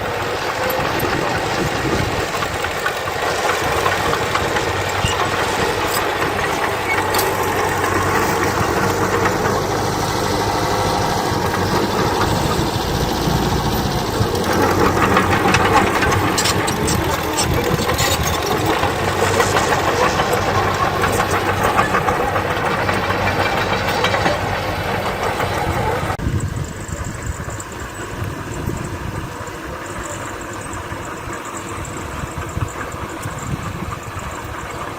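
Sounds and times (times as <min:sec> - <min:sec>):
rattling and clattering: 0:00.0 - 0:26.2
diesel engines running: 0:00.0 - 0:34.9.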